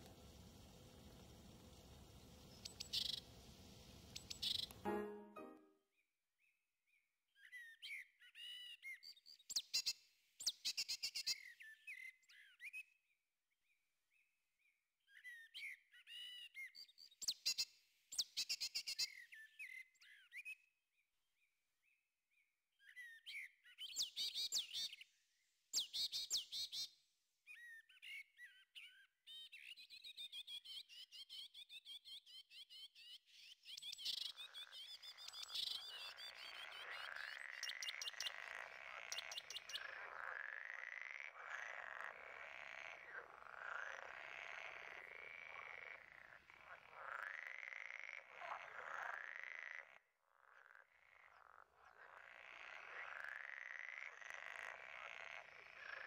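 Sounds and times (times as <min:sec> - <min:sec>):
songbird singing: 0:00.0 - 0:05.7, 0:27.5 - 0:41.9.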